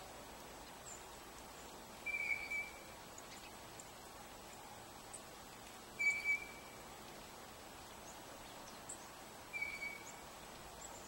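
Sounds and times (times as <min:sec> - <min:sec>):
outdoor hiss: 0:00.0 - 0:11.0
bird whistled notes: 0:02.1 - 0:02.8, 0:06.0 - 0:06.7, 0:09.5 - 0:10.2.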